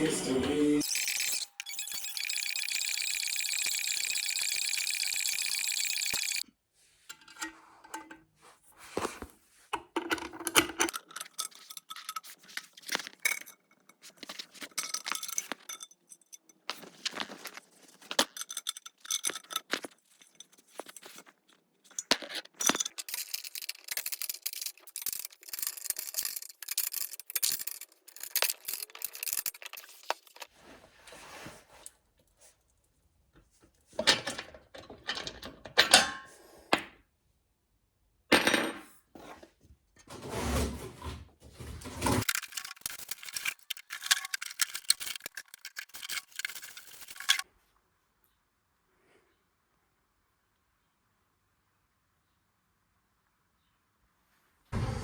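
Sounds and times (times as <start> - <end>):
small hard objects clinking: 0.8 - 6.4, 10.9 - 30.5, 42.2 - 47.5.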